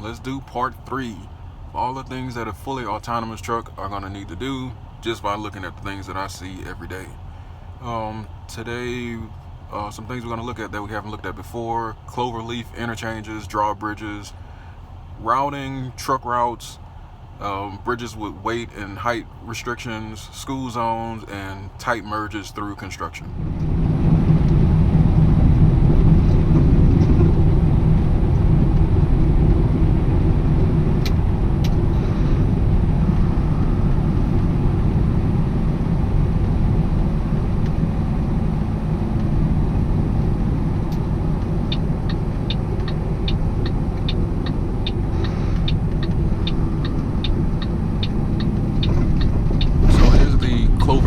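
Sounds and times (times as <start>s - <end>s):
truck engine and road drone: 0.0s - 51.0s
turn signal ticking: 33.9s - 49.8s.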